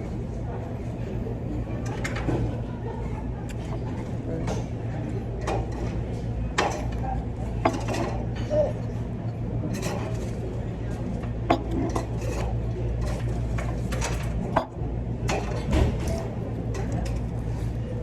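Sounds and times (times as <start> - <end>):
dining room hum: 0.0 - 18.0.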